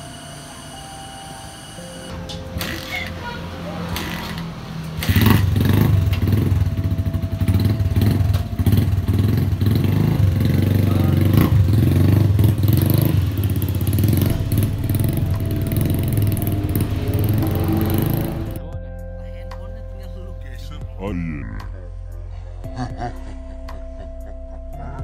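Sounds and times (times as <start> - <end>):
motorcycle engine revving: 2.0 - 18.7.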